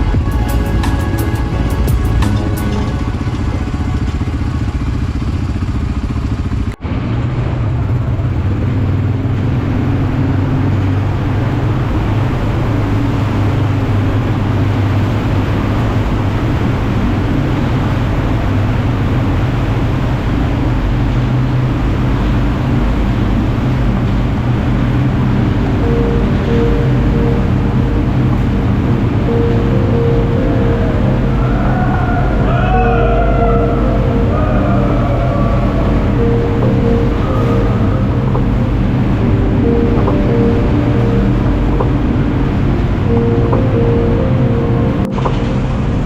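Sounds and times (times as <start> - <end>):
music: 0.0 - 5.1, 22.9 - 46.0
quad bike engine running: 0.0 - 11.2.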